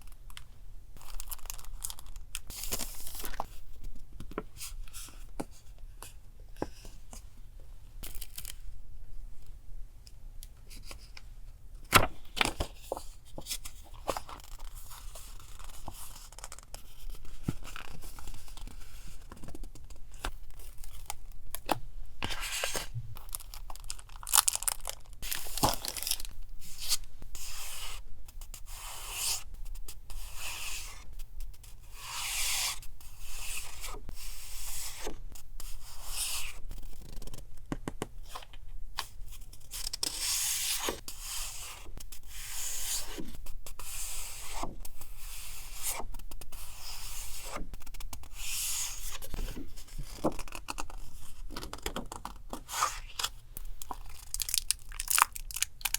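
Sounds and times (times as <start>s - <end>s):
paper tearing and rustling: 22.2s - 27.0s.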